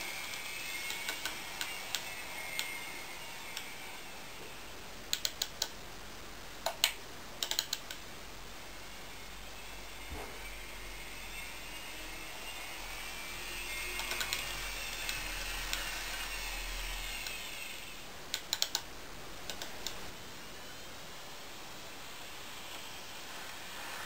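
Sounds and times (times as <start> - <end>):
inverter motor whine: 0.0 - 5.1, 8.2 - 18.6
sharp clicks: 0.3 - 2.8, 5.1 - 5.8, 6.6 - 8.0, 14.0 - 15.9, 18.3 - 20.0
low hum: 8.0 - 18.3.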